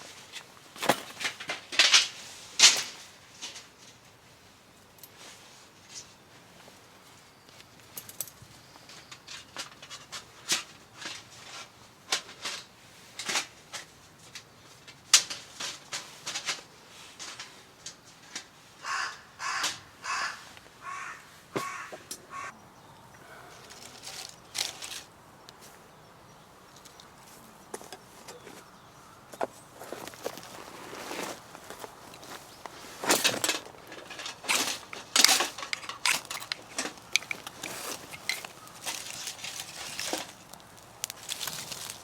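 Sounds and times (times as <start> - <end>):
crow cawing: 18.8 - 22.6.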